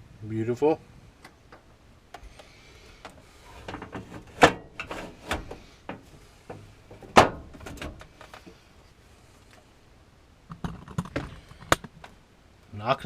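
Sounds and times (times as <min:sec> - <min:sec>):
knocks and clattering: 0:03.6 - 0:08.4.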